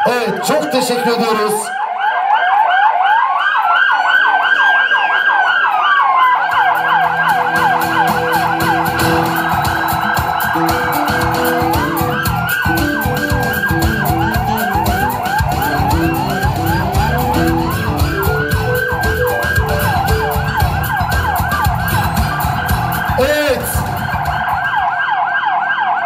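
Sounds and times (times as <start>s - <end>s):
siren wail: 0.0s - 26.0s
siren yelp: 0.0s - 26.0s
low pulsing beat: 6.6s - 23.2s, 23.8s - 24.7s.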